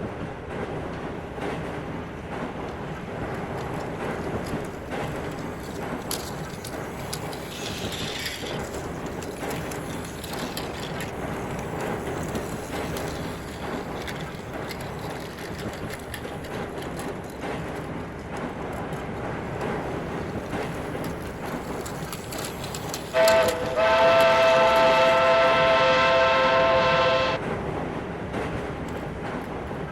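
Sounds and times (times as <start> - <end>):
toy train motor whirring and rattling: 3.3 - 17.9, 19.6 - 25.6
steam whistle: 23.1 - 27.4.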